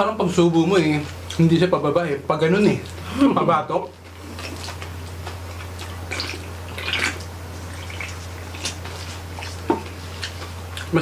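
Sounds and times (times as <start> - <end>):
steady low hum: 0.0 - 11.0
crunching crispy skin: 4.0 - 11.0
wet chewing: 4.0 - 11.0
lip smacks: 4.2 - 11.0.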